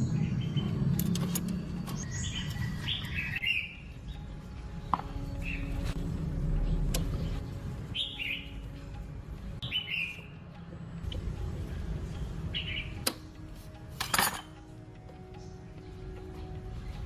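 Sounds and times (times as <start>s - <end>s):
small birds chirping: 0.0s - 6.0s, 6.6s - 8.8s, 9.5s - 10.4s, 12.0s - 13.1s.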